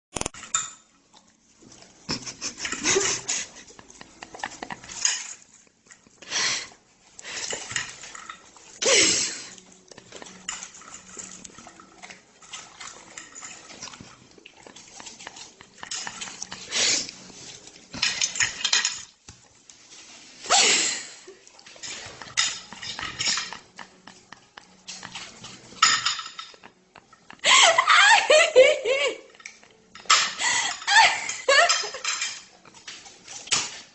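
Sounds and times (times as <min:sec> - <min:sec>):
bowl clattering and scraping: 0:00.2 - 0:06.2, 0:07.1 - 0:27.4, 0:29.3 - 0:33.9
dog eating: 0:01.0 - 0:19.7, 0:21.3 - 0:27.4, 0:32.2 - 0:33.9.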